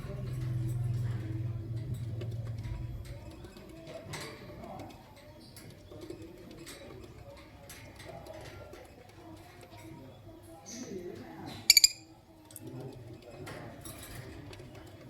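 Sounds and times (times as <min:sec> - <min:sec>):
short sharp bird chirps: 0:11.7 - 0:12.1.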